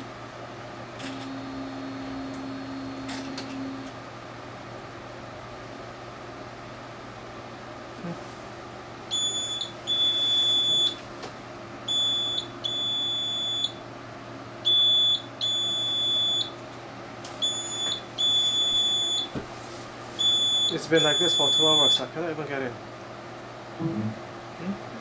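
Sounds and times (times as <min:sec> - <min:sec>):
printer error alarm beeping: 0:09.1 - 0:11.0, 0:11.9 - 0:13.8, 0:14.7 - 0:16.5, 0:17.4 - 0:19.3, 0:20.2 - 0:22.1.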